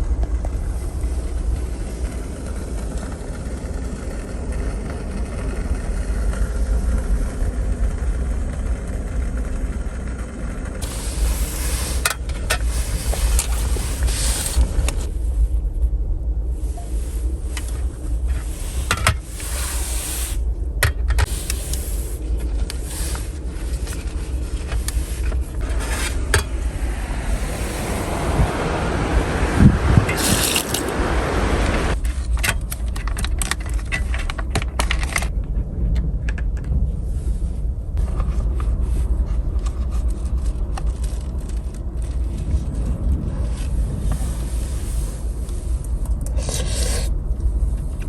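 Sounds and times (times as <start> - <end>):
steady low rumble: 0.0 - 48.0
hiss: 10.8 - 15.1, 16.8 - 20.5, 21.2 - 32.0.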